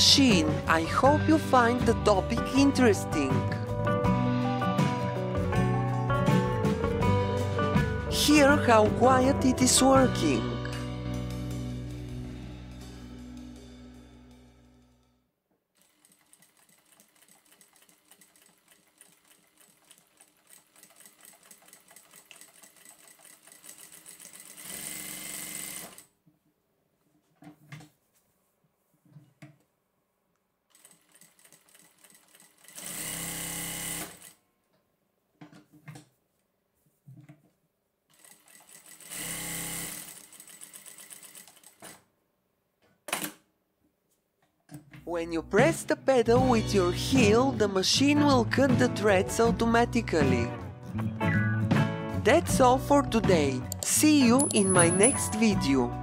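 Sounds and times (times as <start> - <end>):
sewing machine stitching: 15.8 - 26.1, 30.7 - 34.4, 38.1 - 42.0.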